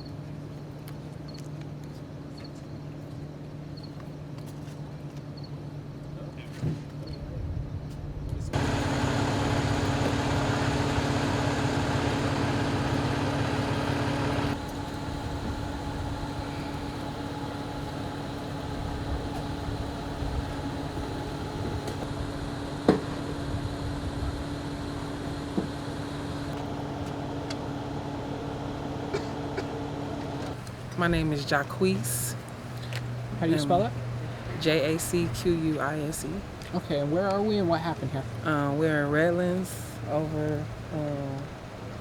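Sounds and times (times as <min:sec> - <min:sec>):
idling engine hum: 0:08.5 - 0:42.0.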